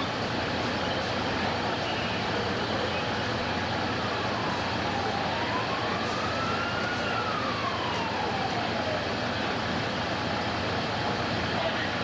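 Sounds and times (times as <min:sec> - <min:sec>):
street and engine noise: 0:00.0 - 0:12.0
faint siren wailing: 0:03.4 - 0:11.4.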